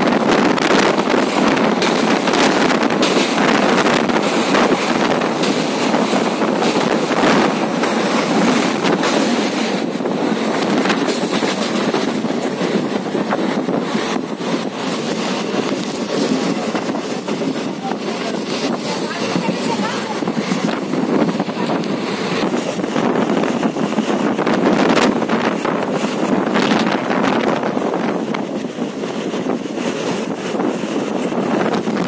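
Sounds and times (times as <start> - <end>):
train wheels rushing on rails: 0.0 - 32.0
wind on microphone: 0.0 - 32.0.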